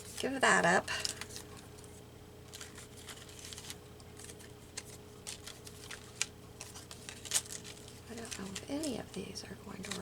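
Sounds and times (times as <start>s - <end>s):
paper rustling: 0.0s - 10.0s.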